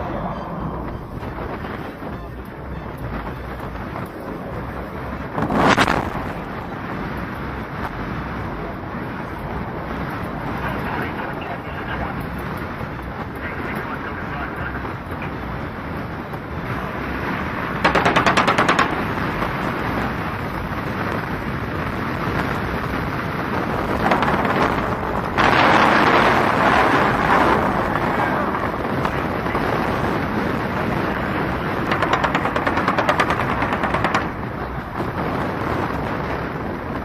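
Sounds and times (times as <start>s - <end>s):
engine rumble: 0.0s - 37.0s
wind noise: 0.0s - 37.0s
automatic gunfire: 17.9s - 19.2s.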